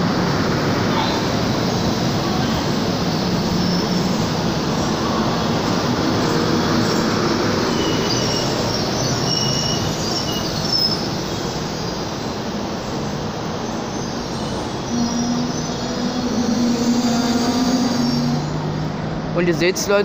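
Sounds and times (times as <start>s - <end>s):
train wheels rumbling: 0.0s - 20.0s
faint high-pitched squeals: 14.0s - 19.1s.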